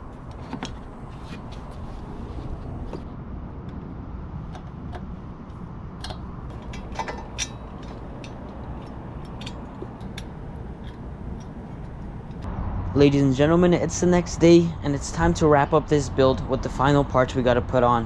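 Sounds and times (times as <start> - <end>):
steady low hum: 0.0 - 18.0
clinks of hand tools and metal parts: 6.0 - 12.0.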